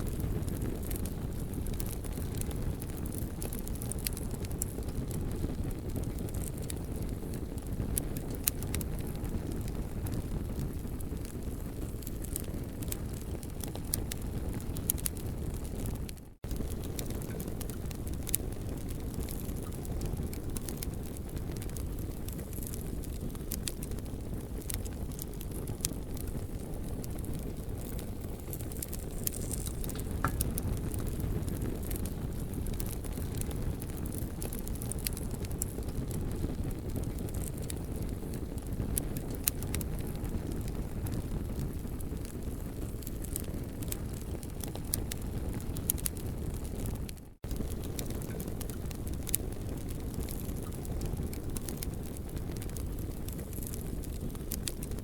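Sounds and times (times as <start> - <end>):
campfire crackling and popping: 0.0 - 55.0
steady low rumble: 26.5 - 33.9.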